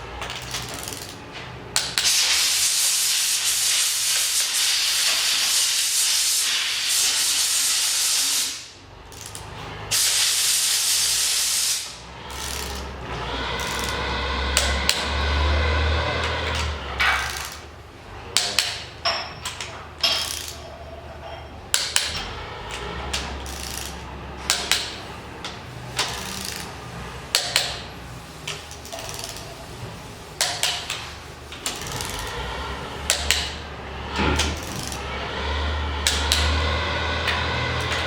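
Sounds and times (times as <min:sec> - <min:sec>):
hand tools clicking on metal: 0:00.2 - 0:02.2, 0:09.1 - 0:09.5, 0:16.2 - 0:17.7, 0:18.4 - 0:20.6, 0:21.7 - 0:26.7, 0:27.3 - 0:29.6, 0:30.4 - 0:32.4, 0:33.0 - 0:33.6, 0:36.0 - 0:36.6.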